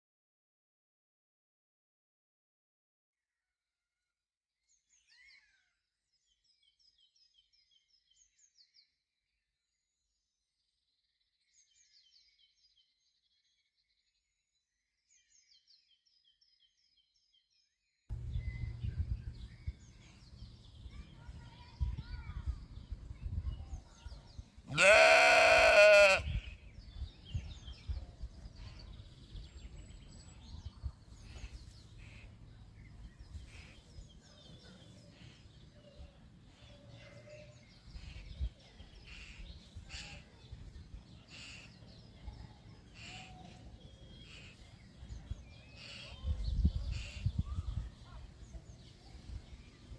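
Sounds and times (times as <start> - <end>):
faint small bird chirps: 4.6 - 24.5, 26.3 - 49.9
low outdoor rumble: 18.1 - 22.6
loud wavering bleat: 24.7 - 26.5.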